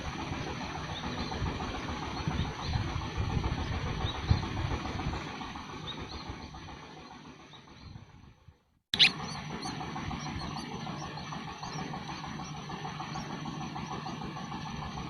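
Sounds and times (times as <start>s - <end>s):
wind rumble on microphone: 1.2s - 5.6s
faint high bird chirps: 9.0s - 11.9s.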